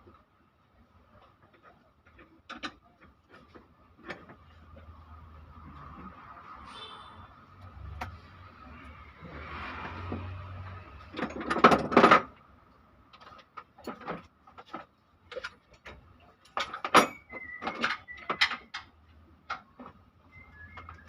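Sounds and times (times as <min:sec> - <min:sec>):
metal tools clinking and knocking: 0:13.2 - 0:19.7.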